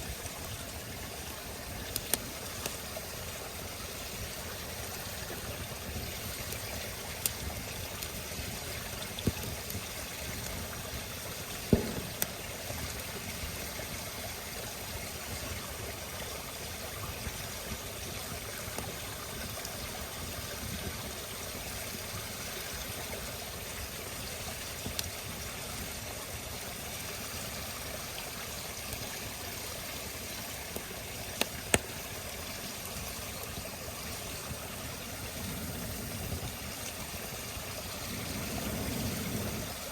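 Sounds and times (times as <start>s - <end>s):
fire crackling pops: 0.0s - 3.1s, 4.0s - 14.6s, 24.6s - 25.2s, 28.8s - 39.9s
campfire hissing: 0.0s - 39.9s.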